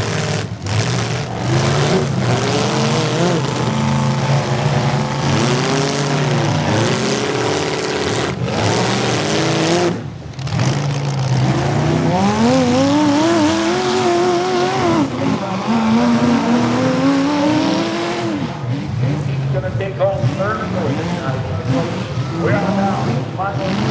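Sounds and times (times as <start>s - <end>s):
car engines revving hard: 0.0s - 23.9s.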